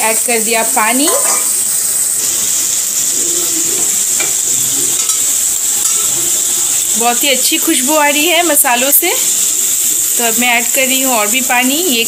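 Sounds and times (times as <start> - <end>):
paste sizzling in hot oil: 0.0 - 12.0
metal spatula scraping pan: 2.2 - 6.9.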